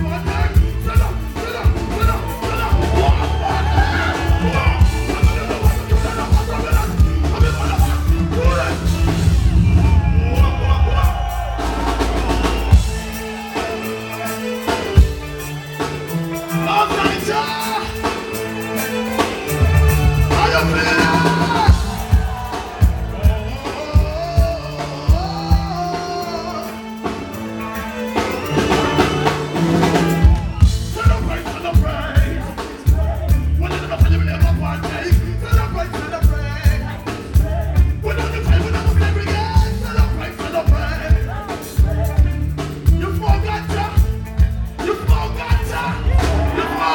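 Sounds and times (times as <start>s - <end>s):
repeating bass line: 0.0s - 13.5s, 28.8s - 46.9s
reggae band playing: 0.0s - 46.9s.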